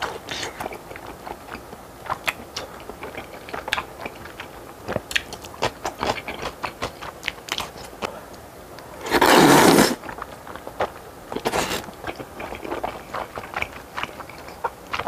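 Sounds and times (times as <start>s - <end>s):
wet chewing mouth clicks: 0.0s - 8.2s.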